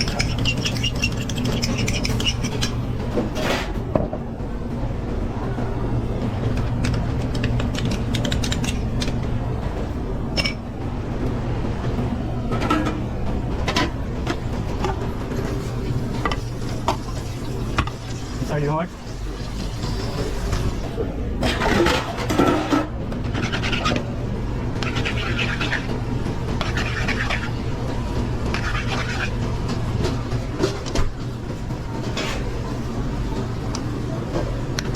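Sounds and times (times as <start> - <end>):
metal utensils and pans clattering: 0.0 - 3.8, 21.4 - 24.0
steady low hum: 0.0 - 34.9.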